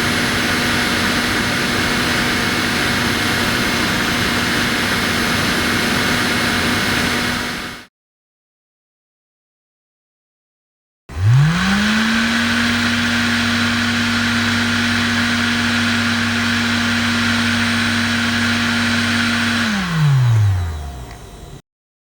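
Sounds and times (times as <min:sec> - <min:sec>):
small fan humming: 0:13.0 - 0:21.6.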